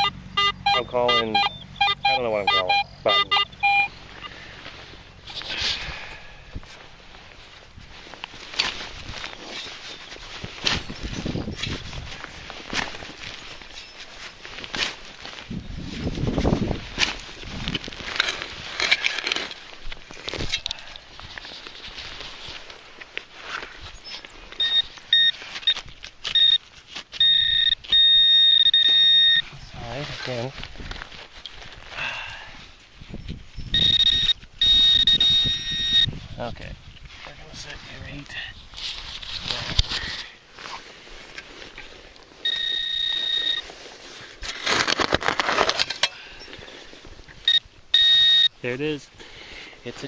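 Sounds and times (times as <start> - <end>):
metal detector beeping: 0.0 - 4.5, 24.0 - 30.0, 33.6 - 36.2, 42.4 - 43.8, 47.4 - 48.7
scraping and rustling soil: 3.9 - 50.0.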